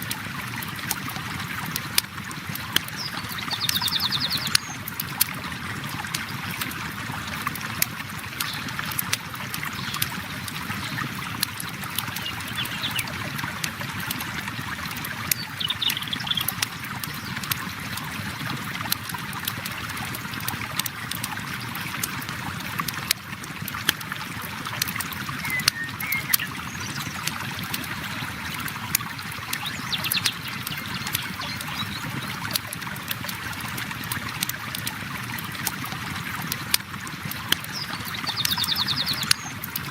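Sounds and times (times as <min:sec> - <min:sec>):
campfire crackling and popping: 0:00.0 - 0:25.7, 0:32.5 - 0:38.6
river water flowing: 0:00.0 - 0:39.9.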